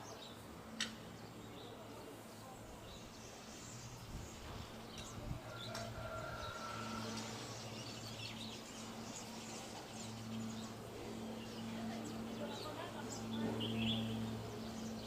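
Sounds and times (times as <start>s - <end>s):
birds chirping: 0.0s - 15.0s
steady low hum: 0.1s - 15.0s.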